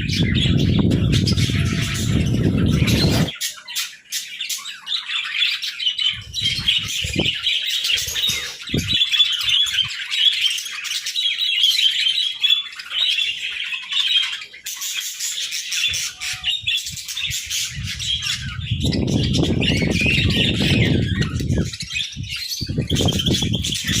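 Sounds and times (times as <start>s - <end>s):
low rumbling noise: 0.0s - 3.3s
budgerigars chattering and chirping: 0.0s - 24.0s.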